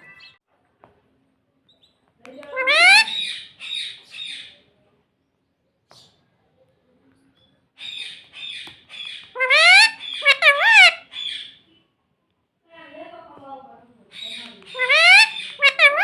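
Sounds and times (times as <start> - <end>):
parakeet raspy chatter: 2.5 - 4.6, 7.8 - 11.7, 14.1 - 16.0
parakeet shrieks: 2.6 - 4.5, 7.8 - 11.6, 14.2 - 16.0.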